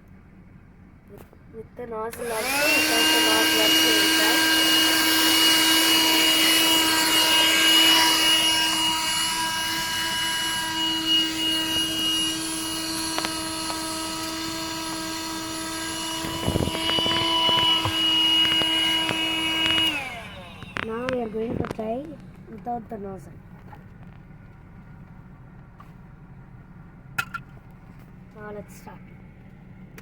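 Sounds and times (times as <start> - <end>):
handheld vacuum cleaner running: 2.1 - 22.1.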